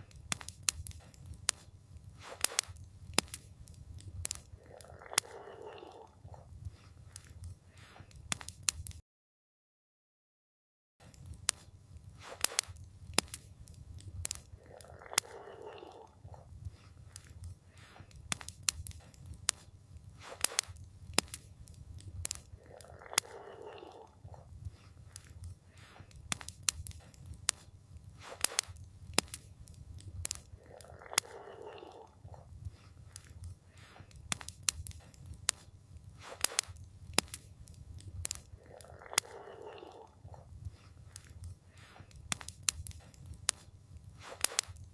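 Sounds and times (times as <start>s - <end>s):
campfire crackling and popping: 0.0s - 9.0s, 11.0s - 44.9s.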